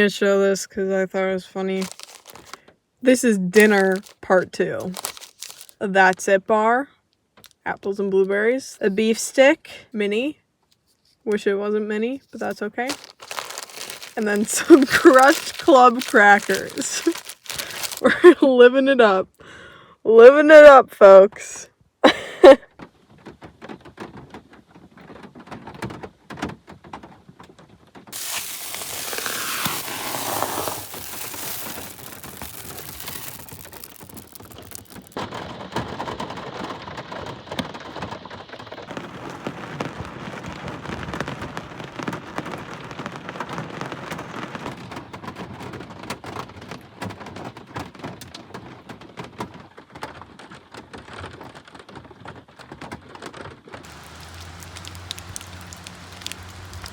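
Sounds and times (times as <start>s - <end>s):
rain pattering on a surface: 1.8s - 2.6s, 3.6s - 4.2s, 4.8s - 5.7s, 12.9s - 18.4s, 23.1s - 56.9s.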